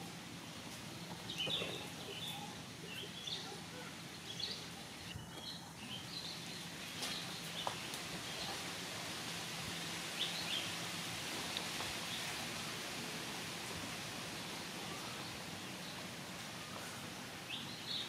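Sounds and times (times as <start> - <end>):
birds chirping: 1.0 - 8.6.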